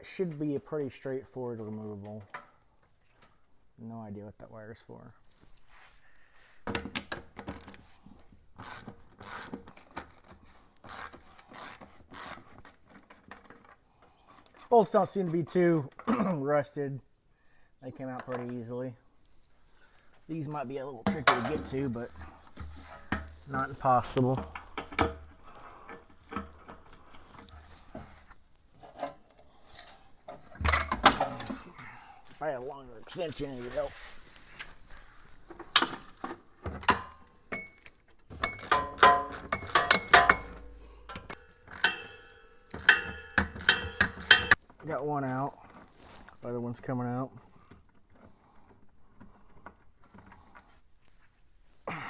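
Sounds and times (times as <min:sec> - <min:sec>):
ratchet wrench clicking: 0:08.6 - 0:09.5, 0:10.9 - 0:12.4, 0:38.4 - 0:44.6
hand tools clicking and knocking: 0:08.6 - 0:14.5, 0:21.0 - 0:23.4, 0:24.2 - 0:28.1, 0:30.3 - 0:32.0, 0:35.5 - 0:44.8.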